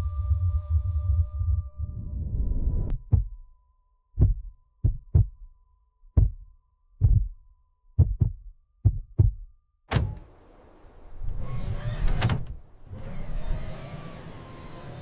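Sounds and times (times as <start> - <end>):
faint steady high tone: 0.0 - 8.8
dull low thumps: 1.8 - 3.5, 4.2 - 9.6.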